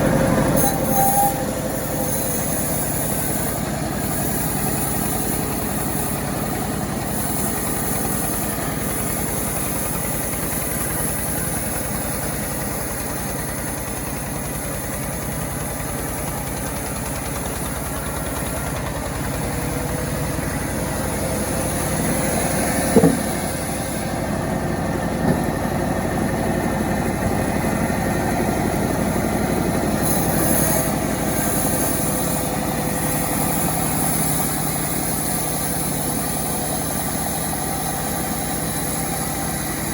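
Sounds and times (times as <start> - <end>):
chainsaw engine running: 0.0 - 39.9
sharp knock: 22.9 - 23.4.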